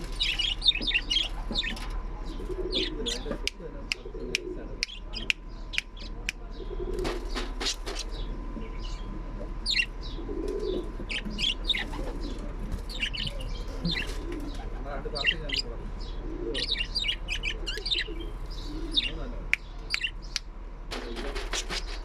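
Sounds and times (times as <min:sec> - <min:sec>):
parrot chirping: 0:00.1 - 0:03.2, 0:09.6 - 0:10.3, 0:11.0 - 0:12.2, 0:12.8 - 0:14.2, 0:15.1 - 0:20.5
wings flapping: 0:20.9 - 0:22.0.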